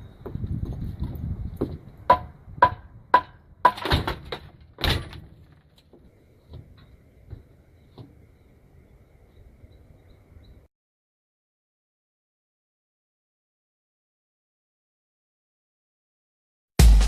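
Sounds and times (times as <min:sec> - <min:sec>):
sharp ringing knocks: 0:02.1 - 0:04.3.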